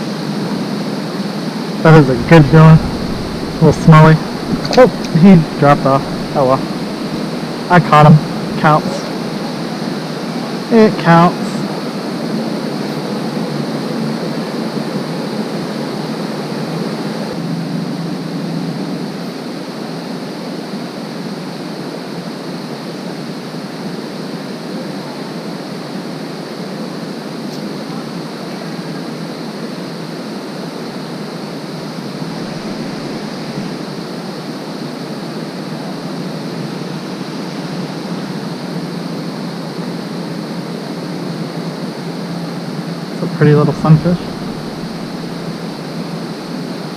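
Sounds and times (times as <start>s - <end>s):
creek water rushing: 1.8s - 10.0s, 31.9s - 34.3s, 43.3s - 46.5s.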